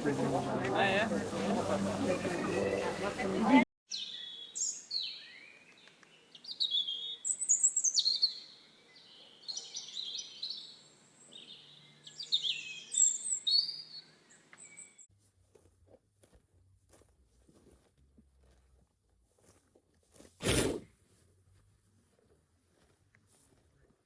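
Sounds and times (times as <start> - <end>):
bird chirping: 3.9 - 15.1.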